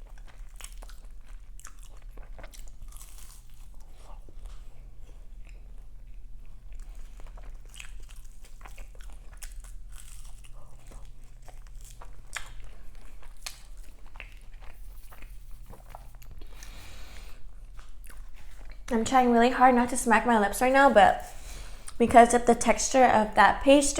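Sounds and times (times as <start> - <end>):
chewing crunchy pastry: 0.0 - 22.2
low steady hum: 8.1 - 23.9.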